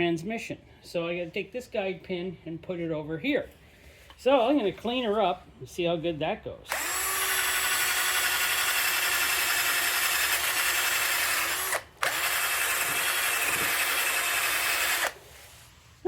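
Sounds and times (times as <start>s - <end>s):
power drill wire brush scrubbing: 6.7s - 15.6s.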